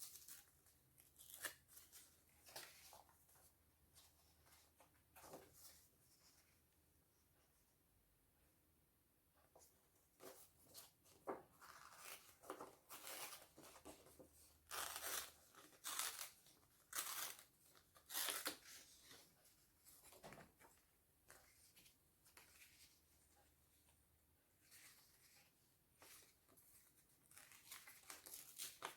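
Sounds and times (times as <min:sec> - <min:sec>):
paper tearing: 0:14.7 - 0:18.6.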